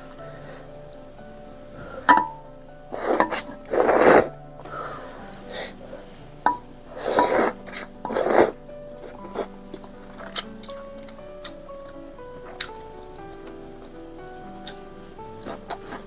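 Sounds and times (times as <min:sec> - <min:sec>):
quiet background music: 0:00.0 - 0:16.0
loud slurps: 0:03.0 - 0:04.3, 0:07.0 - 0:08.6.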